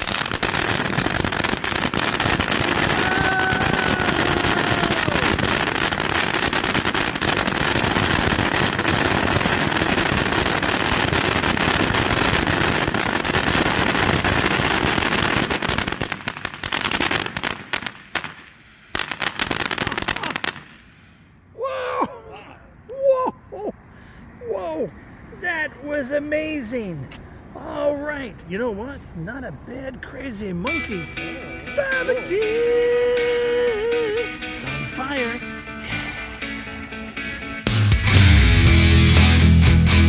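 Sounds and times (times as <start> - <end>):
firework cracks and pops: 0.0 - 21.2
fountain firework crackling: 0.0 - 21.3.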